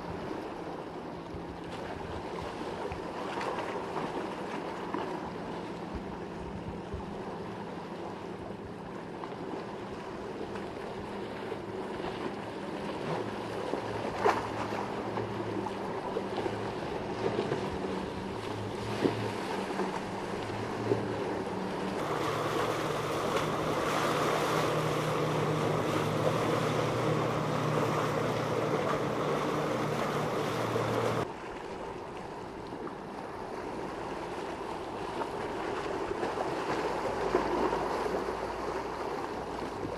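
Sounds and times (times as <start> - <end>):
waves washing: 0.0 - 39.9
wind: 0.0 - 39.9
boat engines running: 0.1 - 31.2.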